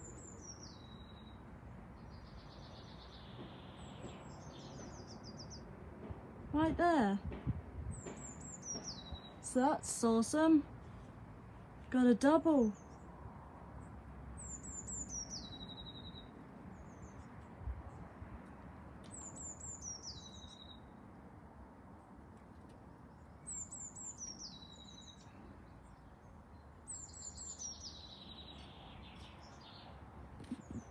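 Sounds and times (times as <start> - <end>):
songbird singing with trill: 0.0 - 5.7, 7.8 - 10.6, 12.4 - 13.1, 14.4 - 17.4, 19.1 - 21.0, 23.1 - 30.9.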